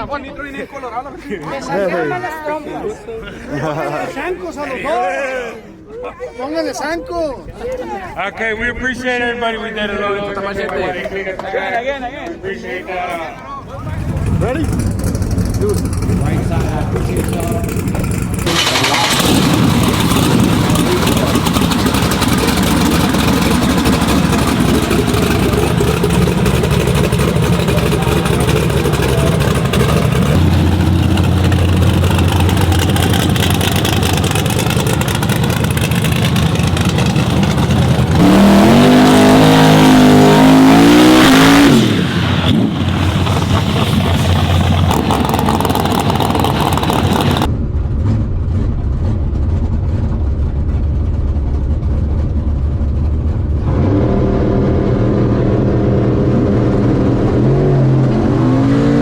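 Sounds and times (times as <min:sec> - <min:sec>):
drag racing truck engines: 0:07.7 - 0:59.0
engine revving: 0:13.8 - 0:59.0.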